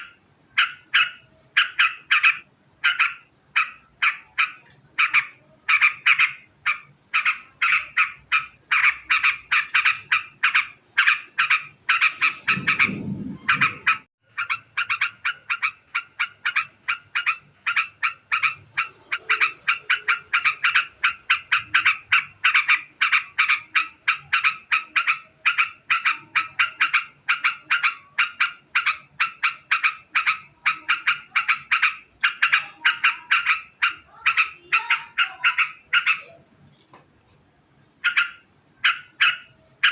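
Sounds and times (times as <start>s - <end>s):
bird chattering call: 0.0s - 36.4s, 38.0s - 39.9s
low rumble: 12.2s - 14.1s.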